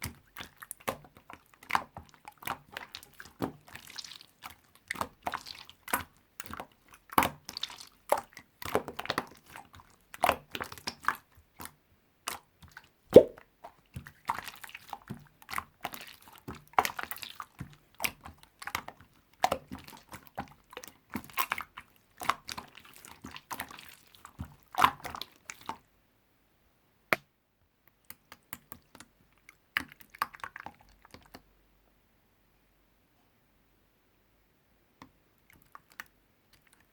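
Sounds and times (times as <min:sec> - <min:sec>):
slime squished by hand: 0:13.1 - 0:13.4.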